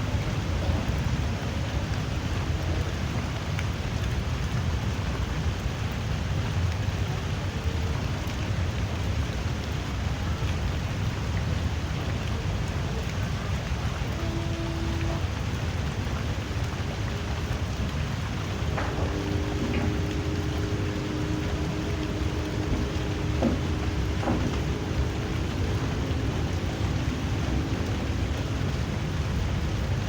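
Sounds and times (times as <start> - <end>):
light rain hissing: 0.0 - 30.0
low rumble: 14.0 - 30.0.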